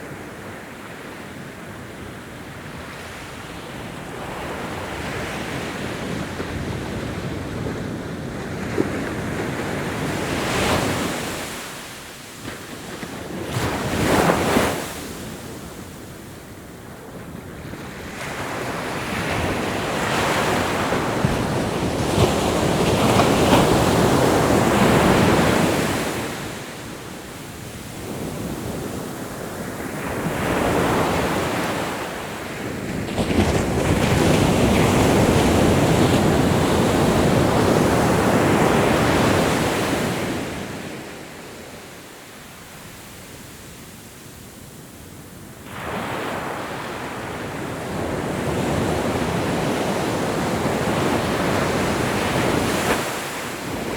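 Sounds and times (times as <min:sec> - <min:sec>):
ocean waves breaking on shore: 0:00.0 - 0:53.9.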